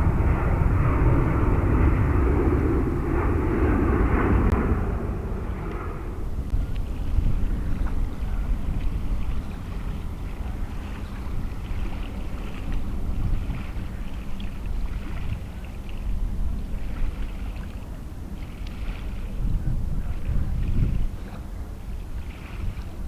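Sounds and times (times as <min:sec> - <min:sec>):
distant jet engines rumbling: 0:00.0 - 0:15.8
wind buffeting microphone: 0:00.0 - 0:23.0.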